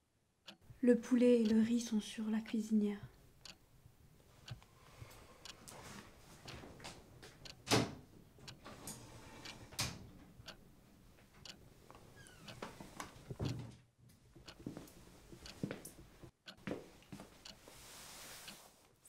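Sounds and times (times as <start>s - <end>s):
footsteps walking: 14.6s - 17.8s.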